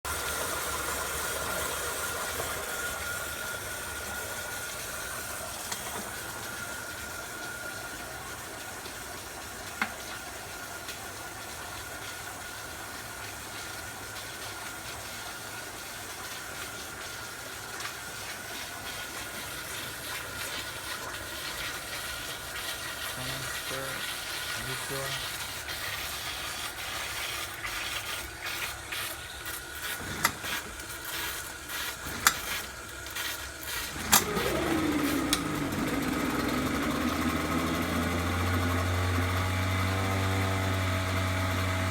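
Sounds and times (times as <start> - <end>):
outboard motor running: 29.2 - 41.9.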